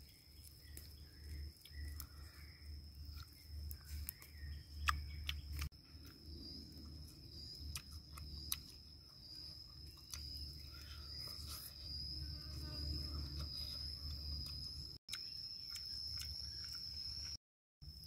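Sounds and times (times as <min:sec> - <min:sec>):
person chewing and smacking: 0:01.6 - 0:02.2, 0:03.1 - 0:06.2, 0:06.8 - 0:11.7, 0:13.3 - 0:17.4
high-pitched insect drone: 0:09.3 - 0:18.0.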